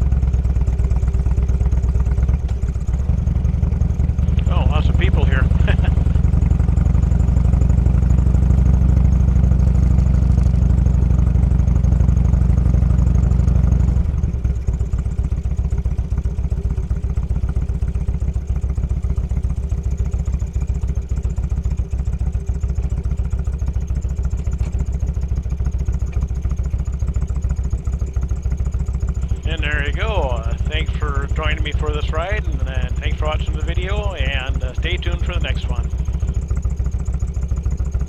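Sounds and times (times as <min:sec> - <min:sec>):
motorcycle engine running and idling: 0:00.0 - 0:38.0.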